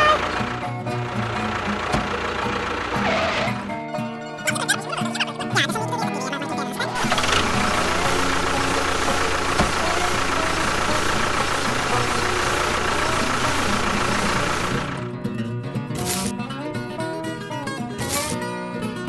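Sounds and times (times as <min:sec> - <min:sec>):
engine idling: 0:00.0 - 0:03.8, 0:06.6 - 0:15.2.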